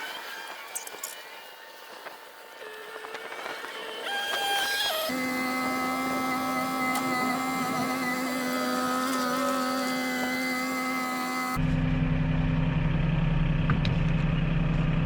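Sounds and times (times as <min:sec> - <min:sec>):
small electric motor whining: 0:00.0 - 0:11.6.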